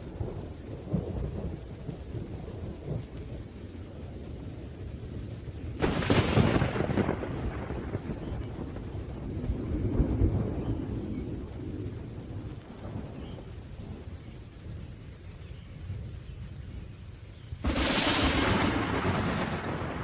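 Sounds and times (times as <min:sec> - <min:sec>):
rolling thunder: 0:00.0 - 0:14.9, 0:17.6 - 0:20.0
steady rain: 0:00.0 - 0:20.0
sharp thunderclap: 0:05.8 - 0:11.5, 0:17.6 - 0:20.0.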